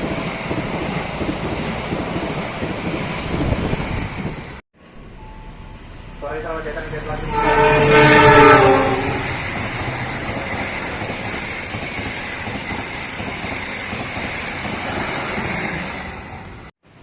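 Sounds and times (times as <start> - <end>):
train rushing past: 0.0 - 16.7
train horn: 7.1 - 9.5.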